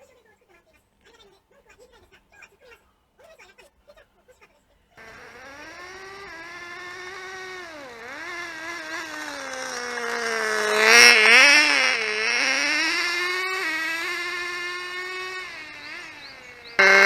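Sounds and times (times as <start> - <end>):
model car engine buzzing: 5.0 - 17.0.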